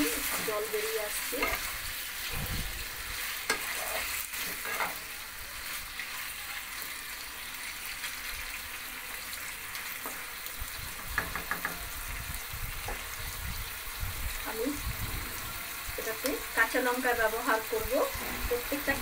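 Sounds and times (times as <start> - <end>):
spatula scraping and knocking pan: 0.0 - 5.1, 11.0 - 11.9
chicken sizzling in a wok: 0.0 - 19.0.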